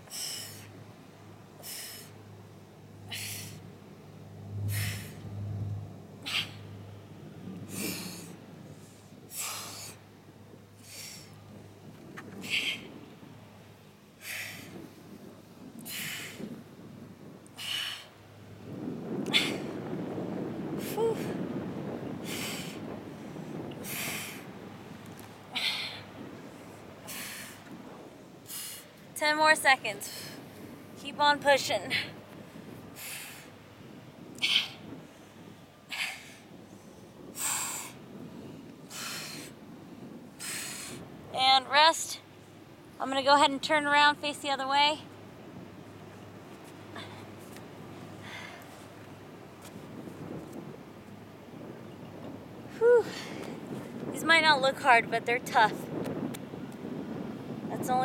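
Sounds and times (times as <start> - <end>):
woman breathing out hard: 25.5 - 26.1, 48.2 - 48.6, 52.8 - 53.5
woman exhaling hard: 52.8 - 53.5.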